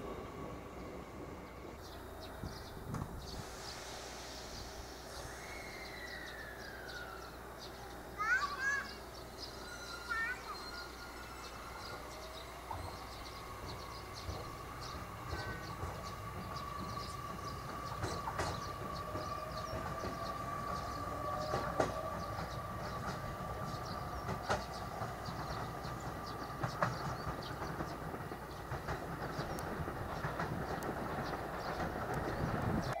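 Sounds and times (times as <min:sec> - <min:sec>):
electric train whine: 0:00.0 - 0:33.0
wheels clicking over rails: 0:08.2 - 0:33.0.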